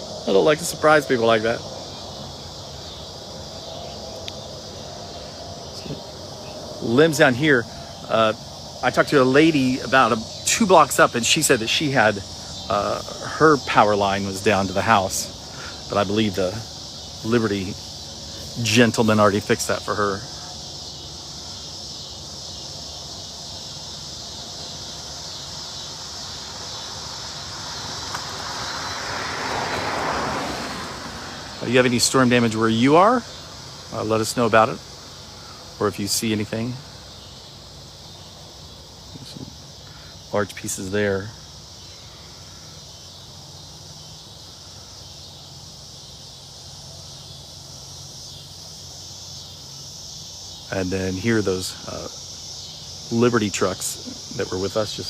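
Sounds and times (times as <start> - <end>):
low outdoor rumble: 0.0 - 28.9
vehicle approaching: 0.0 - 37.1
insects buzzing: 0.0 - 55.0.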